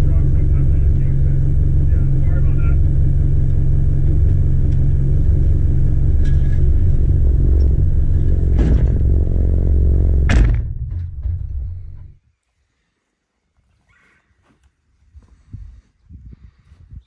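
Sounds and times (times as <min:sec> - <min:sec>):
excavator diesel engine rumbling: 0:00.0 - 0:12.2
loud knock: 0:06.2 - 0:12.1.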